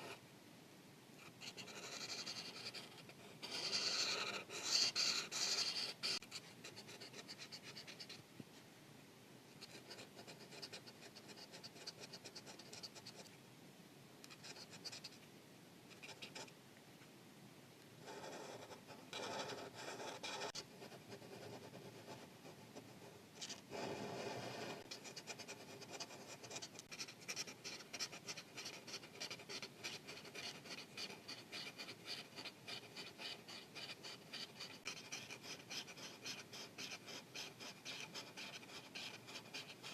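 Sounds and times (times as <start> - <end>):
felt-tip marker scratching paper: 1.2 - 8.2, 9.6 - 13.2, 18.1 - 22.3, 23.4 - 39.9.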